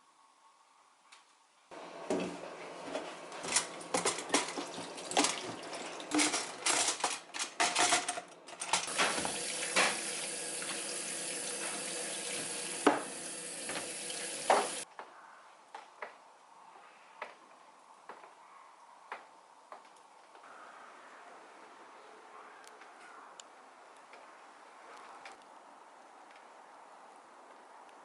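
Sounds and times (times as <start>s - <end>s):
dishes clattering in sink: 3.4s - 14.8s
tap running: 8.7s - 14.8s.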